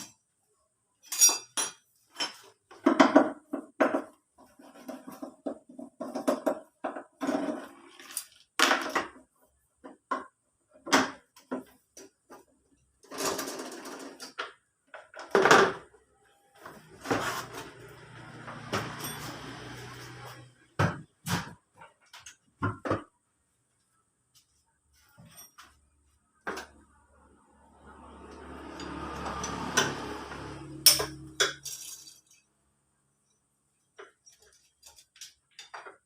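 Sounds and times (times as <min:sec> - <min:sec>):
metal tools clinking: 0:01.0 - 0:02.5, 0:18.8 - 0:19.8, 0:25.2 - 0:25.8, 0:30.8 - 0:32.5.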